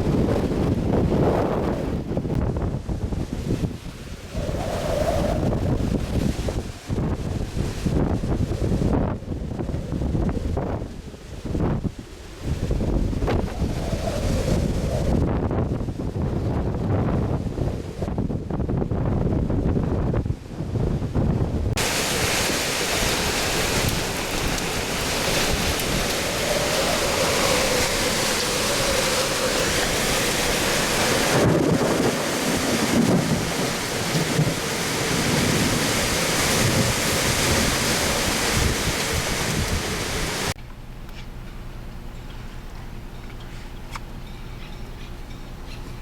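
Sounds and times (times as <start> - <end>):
wind buffeting microphone: 0.0 - 46.0
heavy rain rushing: 21.7 - 40.6.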